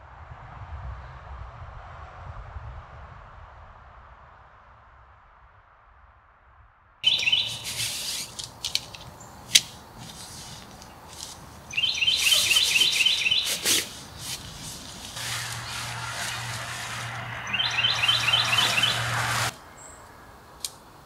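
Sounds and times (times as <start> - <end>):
tent fabric rustling: 7.0 - 19.6
songbird chirping: 7.0 - 21.0
sharp clicks: 7.1 - 14.5.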